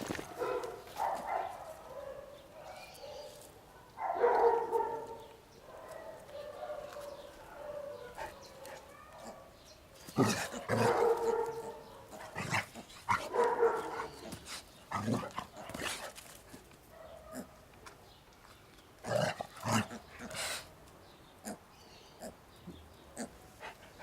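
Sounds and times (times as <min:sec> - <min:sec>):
dog barking and yipping: 0:00.2 - 0:16.1.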